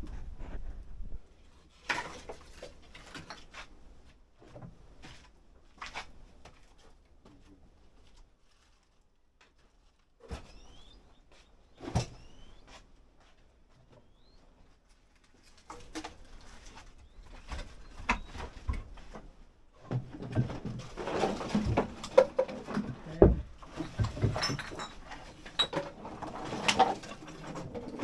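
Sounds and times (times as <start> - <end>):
household items knocking and clattering: 19.9 - 28.0.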